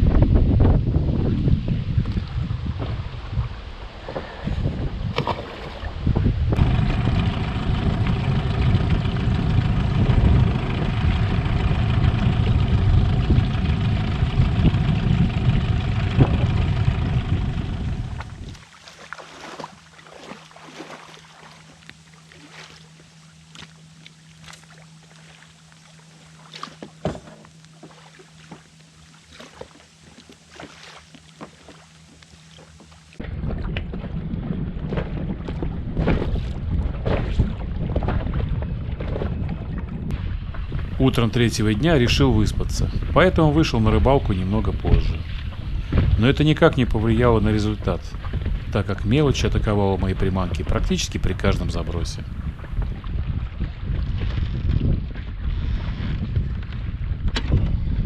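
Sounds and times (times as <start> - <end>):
wind on microphone: 0.0 - 18.6, 33.2 - 58.0
outboard motor running: 0.0 - 58.0
faint low hum: 4.2 - 19.0.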